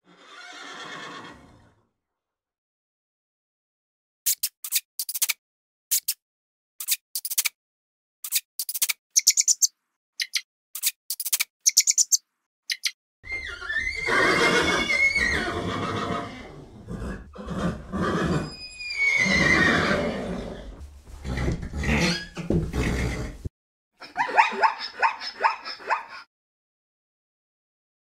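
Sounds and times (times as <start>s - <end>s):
high-pitched chirping: 8.6s - 13.0s
animal crying: 13.2s - 20.6s, 24.0s - 26.3s.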